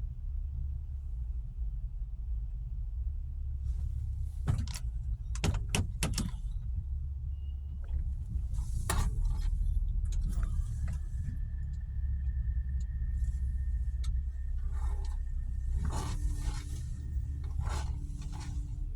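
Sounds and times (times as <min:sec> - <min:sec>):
vehicle rumble: 0:00.0 - 0:18.9
sharp clicks and knocks: 0:04.5 - 0:06.6.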